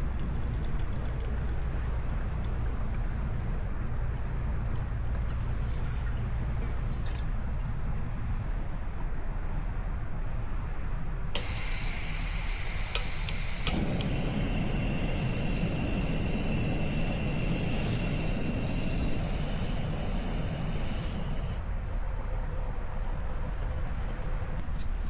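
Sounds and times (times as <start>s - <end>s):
sharp clicks: 11.4s - 16.5s
steady hiss: 11.4s - 21.6s
rushing noise: 11.4s - 21.7s.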